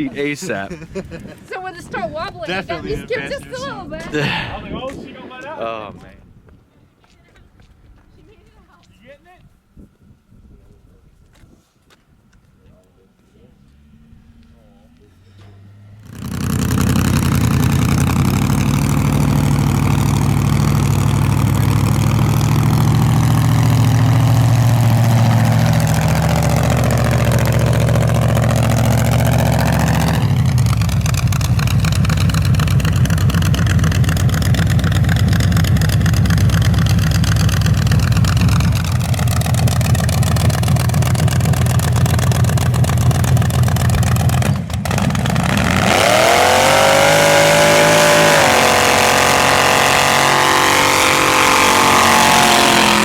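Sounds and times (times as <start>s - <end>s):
truck engine at high revs: 15.3s - 53.0s.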